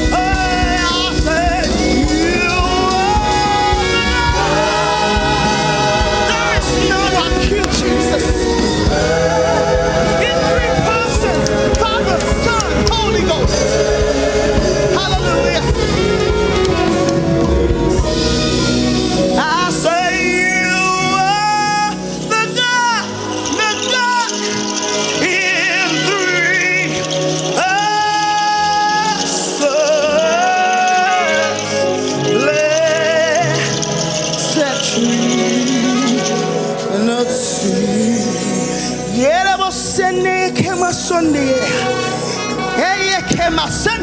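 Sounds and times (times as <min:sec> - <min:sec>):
band with steady drum beat: 0:00.0 - 0:19.9
band playing gospel music: 0:00.0 - 0:44.0
choir singing: 0:00.0 - 0:44.0
lead voice singing: 0:00.0 - 0:44.0.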